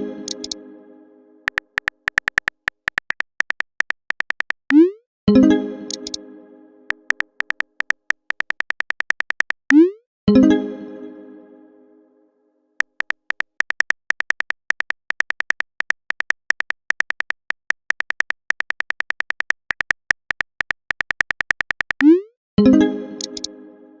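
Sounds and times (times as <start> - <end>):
phone keyboard typing clicks: 0.3 - 0.6, 1.5 - 4.8, 5.9 - 6.2, 6.9 - 9.8, 12.8 - 22.1, 23.2 - 23.5.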